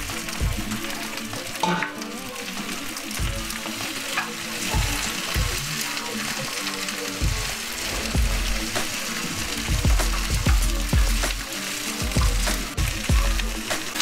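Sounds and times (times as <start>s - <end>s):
spinach sizzling in hot oil: 0.0s - 14.0s
stirring knocks and scrapes: 3.2s - 14.0s.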